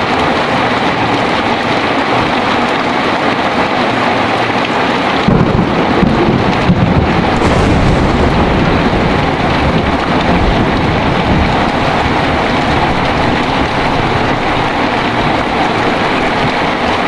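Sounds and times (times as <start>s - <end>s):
heavy rain: 0.0s - 17.0s
thunder rumble: 5.3s - 17.0s.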